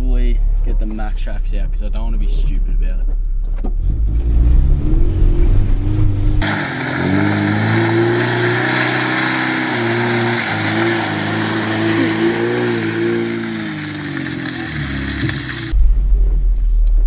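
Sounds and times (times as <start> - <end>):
engine working under load: 3.7 - 16.3.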